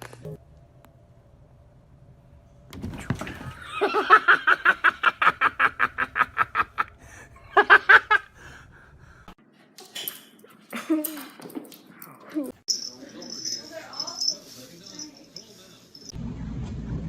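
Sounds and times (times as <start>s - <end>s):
person laughing hard: 3.6s - 8.4s.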